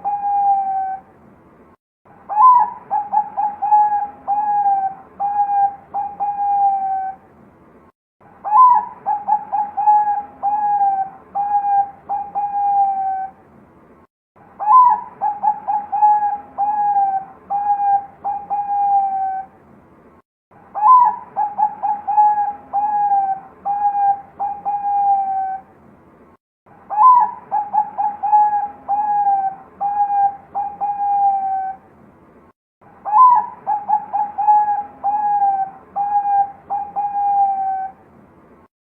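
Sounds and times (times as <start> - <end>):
dove cooing: 0.0 - 1.0, 2.3 - 7.2, 8.4 - 13.4, 14.6 - 19.5, 20.8 - 25.7, 26.9 - 31.8, 33.0 - 38.0.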